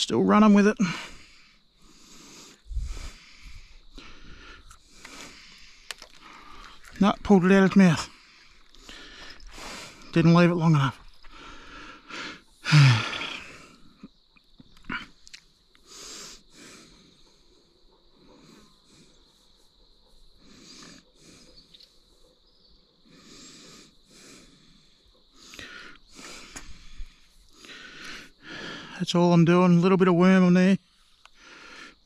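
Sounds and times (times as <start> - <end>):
soft wheezy breaths: 0.8 - 7.0, 8.1 - 10.2, 11.0 - 14.1, 15.1 - 29.0, 30.8 - 32.0
man sighing: 12.6 - 13.8.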